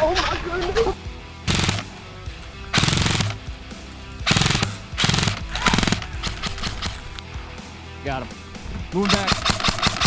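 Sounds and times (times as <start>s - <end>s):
airsoft gun full-auto bursts: 1.5s - 1.9s, 2.7s - 3.4s, 4.2s - 7.1s, 9.0s - 10.0s.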